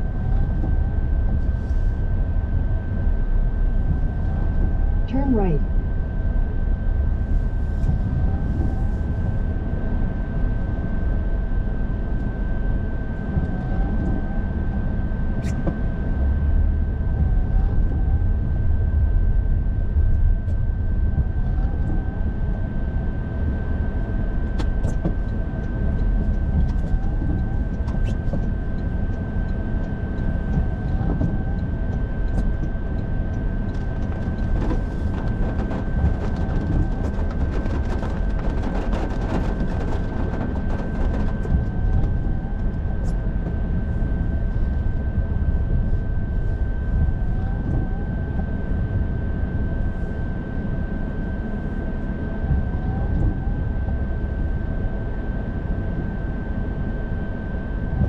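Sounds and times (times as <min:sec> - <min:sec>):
car engine and road noise: 0:32.2 - 0:42.6.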